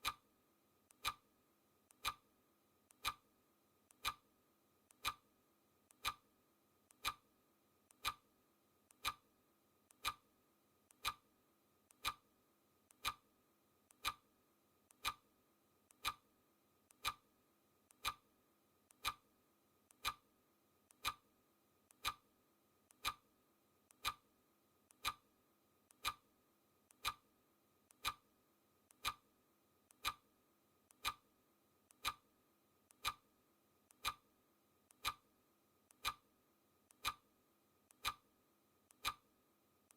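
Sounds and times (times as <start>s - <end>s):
clock ticking: 0.0s - 0.2s, 0.9s - 1.2s, 1.9s - 2.3s, 2.9s - 3.3s, 3.9s - 4.3s, 4.9s - 5.3s, 5.9s - 6.3s, 6.9s - 7.3s, 7.9s - 8.3s, 8.9s - 9.3s, 9.9s - 10.3s, 10.9s - 11.2s, 11.9s - 12.3s, 12.9s - 13.3s, 13.9s - 14.3s, 14.9s - 15.3s, 15.9s - 16.3s, 16.9s - 17.3s, 17.9s - 18.3s, 18.9s - 19.3s, 19.9s - 20.3s, 20.9s - 21.3s, 21.9s - 22.3s, 22.9s - 23.3s, 23.9s - 24.2s, 24.9s - 25.3s, 25.9s - 26.3s, 26.9s - 27.3s, 27.9s - 28.3s, 28.9s - 29.3s, 29.9s - 30.3s, 30.9s - 31.3s, 31.9s - 32.3s, 32.9s - 33.3s, 33.9s - 34.3s, 34.9s - 35.3s, 35.9s - 36.3s, 36.9s - 37.3s, 37.9s - 38.3s, 38.9s - 39.3s.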